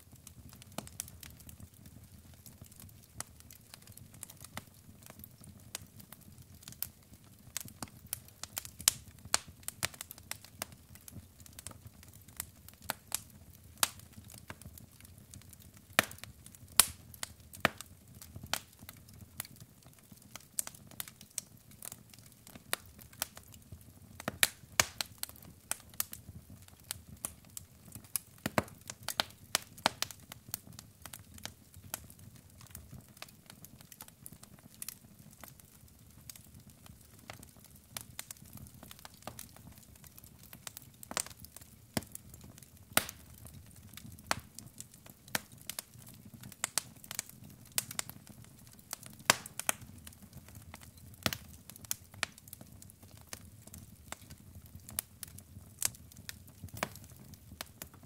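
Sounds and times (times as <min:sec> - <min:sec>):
logs crackling and popping: 0:00.1 - 0:58.0.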